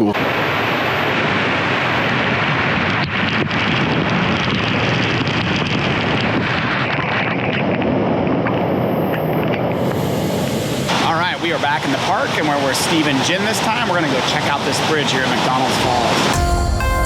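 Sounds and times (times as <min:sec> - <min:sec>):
waterfall rushing: 0:09.7 - 0:16.4.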